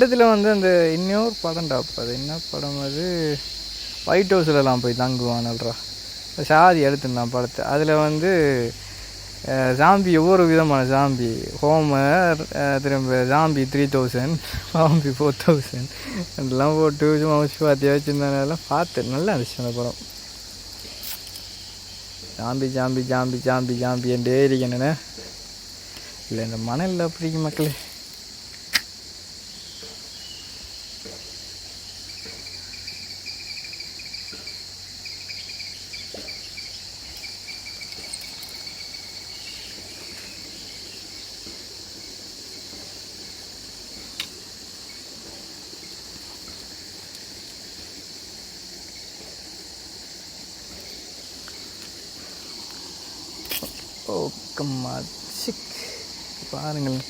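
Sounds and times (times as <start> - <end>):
high-pitched insect drone: 0.0 - 57.0
thin insect trill: 0.0 - 57.0
sharp click: 28.5 - 28.9, 44.2 - 44.4.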